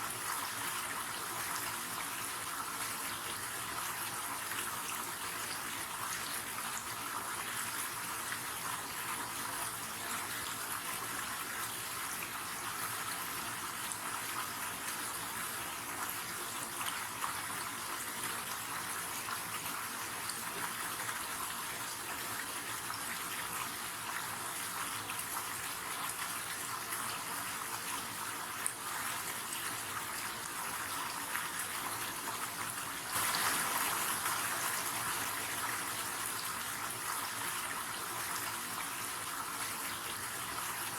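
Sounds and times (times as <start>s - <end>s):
river water flowing and splashing: 33.1s - 36.9s.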